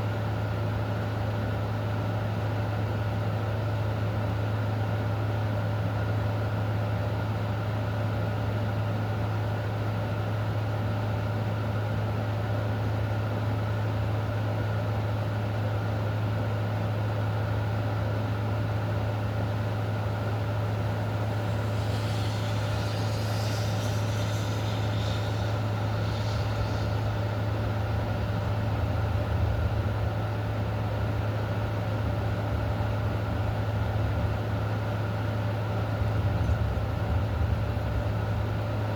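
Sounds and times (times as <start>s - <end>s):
low mechanical hum: 0.0s - 38.9s
constant hiss: 19.4s - 30.2s.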